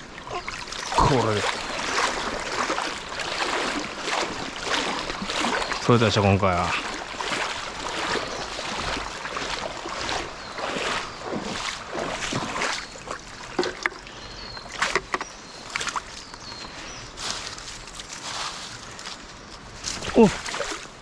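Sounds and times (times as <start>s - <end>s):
water splashing in stream: 0.0s - 16.6s, 19.8s - 21.0s
stones clacking underwater: 13.5s - 14.1s, 14.7s - 15.9s.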